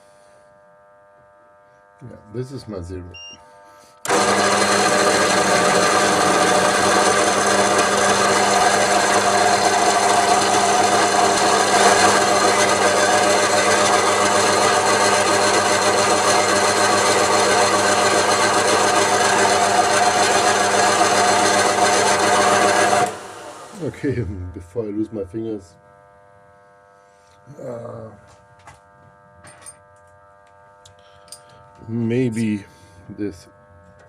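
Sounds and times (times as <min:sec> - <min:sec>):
machine tool whining: 0:03.9 - 0:24.8
metal cutting grinding: 0:04.0 - 0:24.3.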